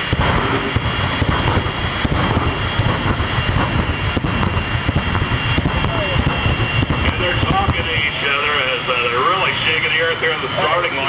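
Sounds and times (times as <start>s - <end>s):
jet engine running at full power: 0.0s - 11.0s.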